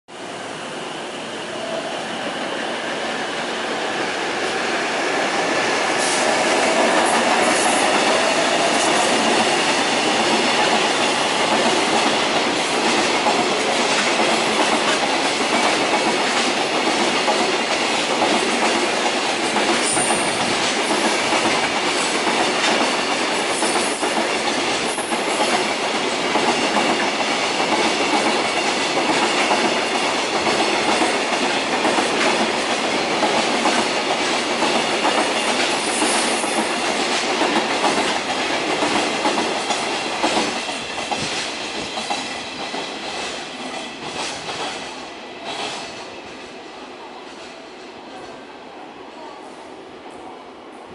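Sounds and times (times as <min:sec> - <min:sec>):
freight train rolling past: 0:00.1 - 0:50.9.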